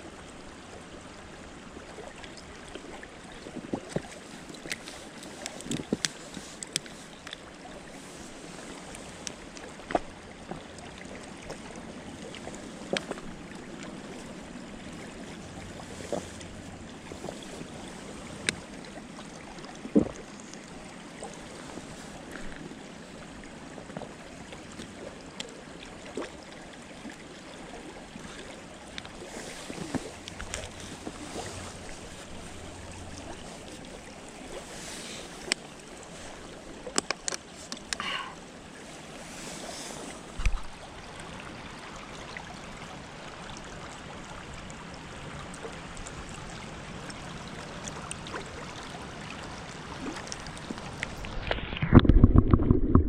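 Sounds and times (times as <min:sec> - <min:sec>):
sharp snaps and clicks: 0:36.9 - 0:38.0.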